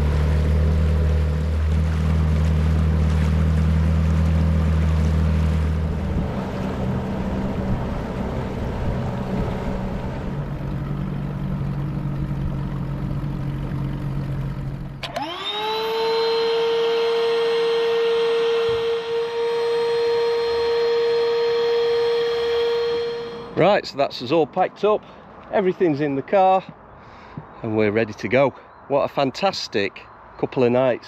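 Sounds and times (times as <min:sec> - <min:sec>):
motorboat engine running: 0:00.0 - 0:23.7
steady drone with overtones: 0:00.0 - 0:23.7.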